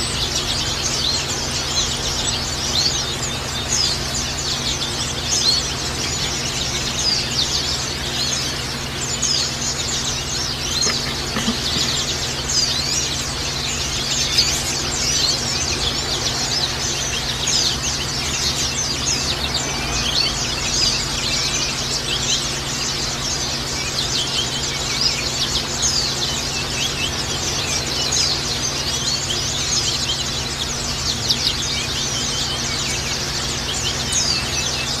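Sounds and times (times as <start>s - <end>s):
birds twittering and trilling: 0.0s - 35.0s
steady low hum: 0.0s - 35.0s.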